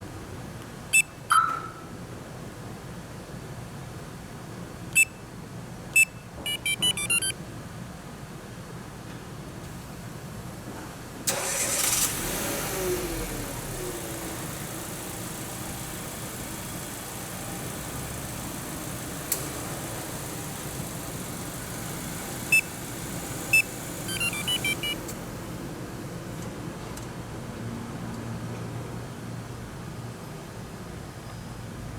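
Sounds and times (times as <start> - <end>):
short electronic beeps: 0.9 - 1.8, 6.0 - 7.4, 23.5 - 25.0
car engine starting and idling: 11.2 - 27.6
click: 19.1 - 19.9
rapid beeps at changing pitch: 23.5 - 25.0.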